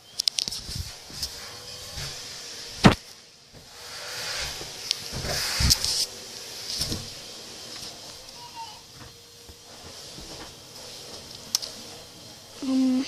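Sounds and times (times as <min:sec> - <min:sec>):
fabric rustling: 0:00.5 - 0:08.3.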